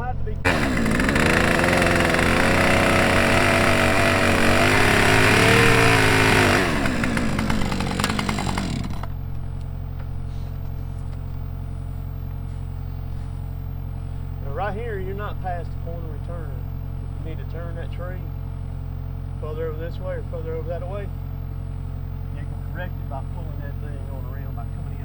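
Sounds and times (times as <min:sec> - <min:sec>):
chainsaw running: 0:00.4 - 0:09.3.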